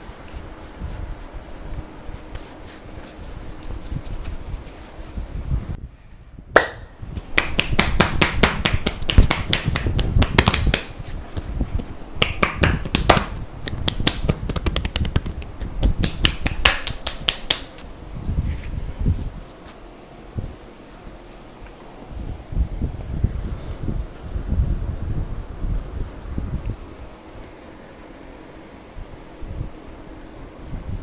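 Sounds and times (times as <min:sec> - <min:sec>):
hands slapping and tapping skin: 0:06.6 - 0:11.5, 0:12.2 - 0:17.8.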